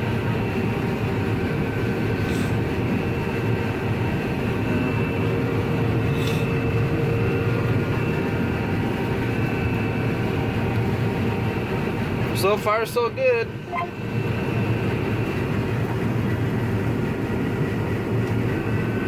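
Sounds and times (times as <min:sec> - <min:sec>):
combine harvester drone: 0:00.0 - 0:19.0
short hisses: 0:02.2 - 0:02.6, 0:06.1 - 0:06.5.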